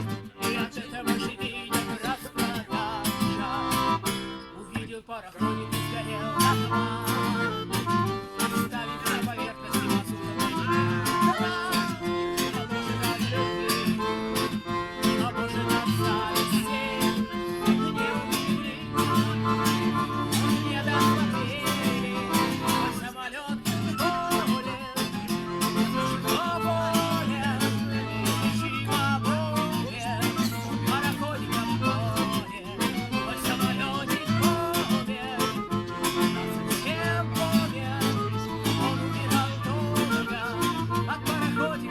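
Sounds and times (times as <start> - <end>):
guitar melody line: 0.0 - 41.9
strummed acoustic guitar: 0.0 - 41.9.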